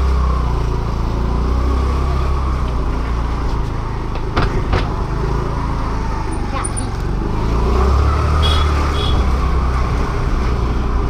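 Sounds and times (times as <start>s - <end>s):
vehicle engine rumbling: 0.0s - 11.0s
sharp knocks: 4.1s - 5.2s.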